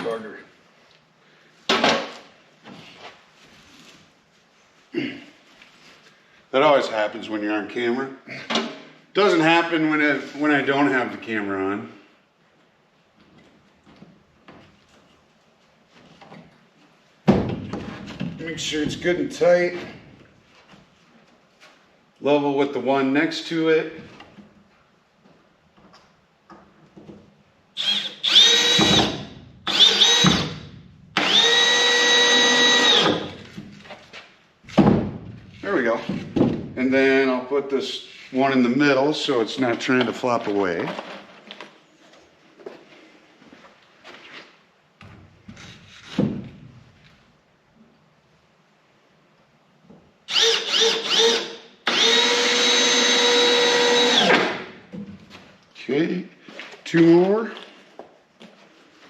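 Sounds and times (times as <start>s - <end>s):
cordless drill motor whining: 27.8s - 30.6s, 31.2s - 33.4s, 50.3s - 54.5s
screws driven into wood: 27.8s - 33.5s, 50.3s - 54.7s.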